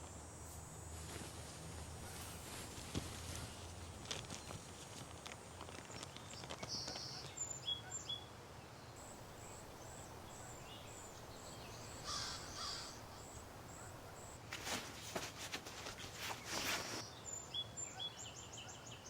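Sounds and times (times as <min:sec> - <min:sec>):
crow cawing: 0:11.7 - 0:14.2.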